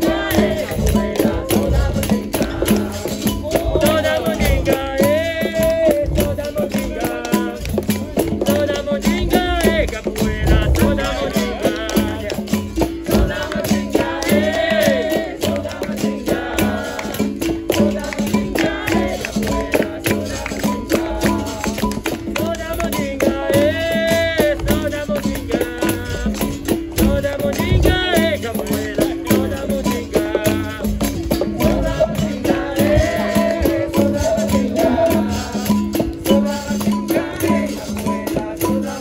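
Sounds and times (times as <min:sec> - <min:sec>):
people singing verses: 0:00.0 - 0:39.0
percussion: 0:00.0 - 0:39.0
shaken rattle: 0:00.0 - 0:39.0.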